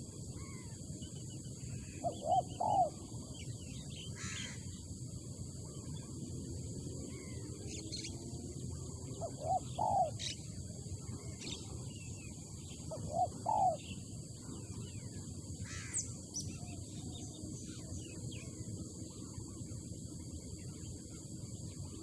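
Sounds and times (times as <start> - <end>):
low background rumble: 0.0 - 22.0
small birds chirping: 0.4 - 19.9
dove cooing: 2.0 - 3.0, 9.2 - 10.3, 12.9 - 13.8.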